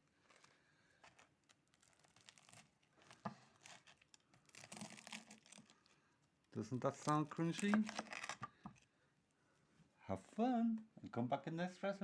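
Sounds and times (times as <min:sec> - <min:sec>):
crispy fried coating crunching: 0:01.0 - 0:06.0.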